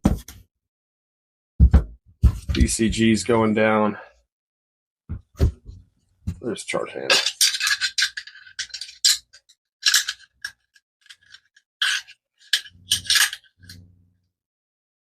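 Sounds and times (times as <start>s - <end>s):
metallic clicks and scrapes: 7.1s - 13.9s.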